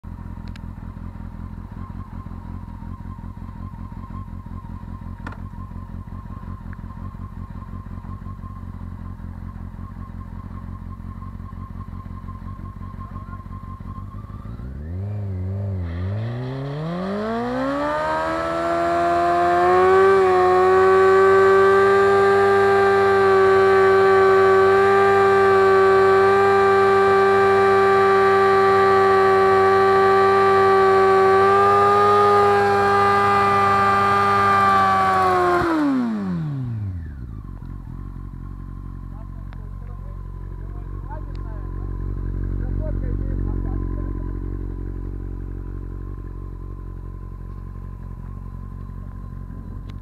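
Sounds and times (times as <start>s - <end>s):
motorcycle engine idling and revving: 0.0s - 50.0s
rear tyre spinning in burnout: 0.6s - 39.6s.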